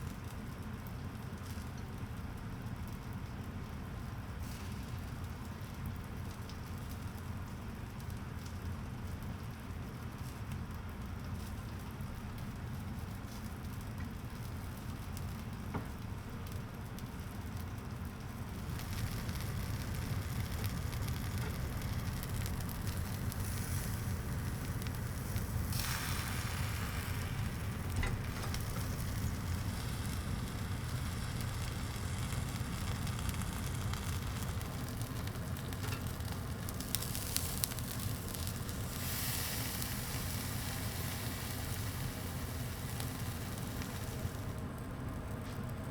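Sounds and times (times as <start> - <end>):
charcoal fire crackling and sizzling: 0.0 - 45.9
steady low hum: 17.6 - 45.9.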